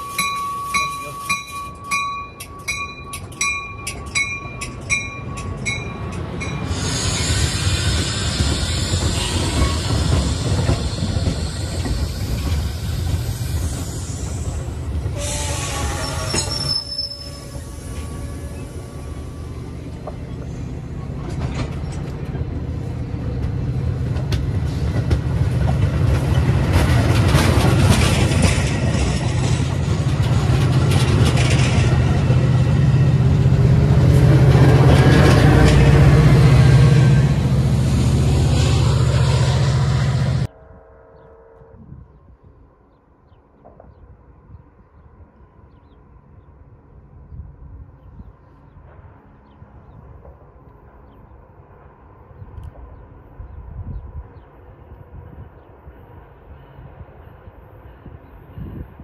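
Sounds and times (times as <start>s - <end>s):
train wheels rumbling on rail: 0.0s - 40.6s
high wheel squeal: 6.5s - 19.6s.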